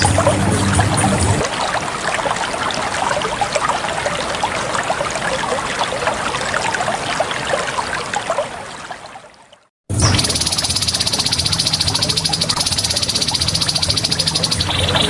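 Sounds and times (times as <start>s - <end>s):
flowing water: 0.0s - 15.0s
birds chirping: 10.0s - 15.0s.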